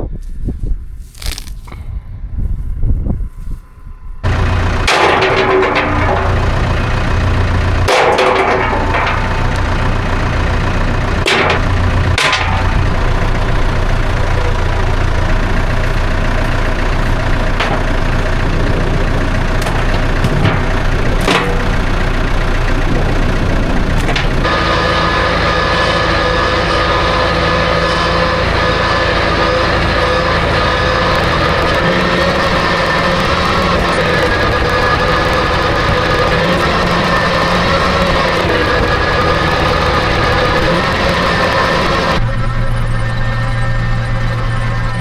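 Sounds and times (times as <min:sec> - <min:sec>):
steady tones: 0:01.7 - 0:45.0
vehicle engine running: 0:04.2 - 0:45.0
sharp knocks: 0:04.8 - 0:14.0, 0:15.8 - 0:24.6.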